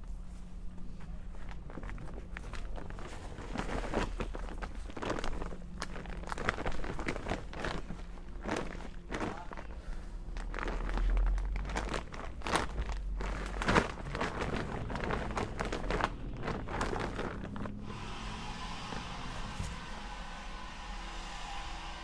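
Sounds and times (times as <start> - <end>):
soil rustling and crunching: 0.2 - 17.9
leaf blower hissing: 17.8 - 22.0.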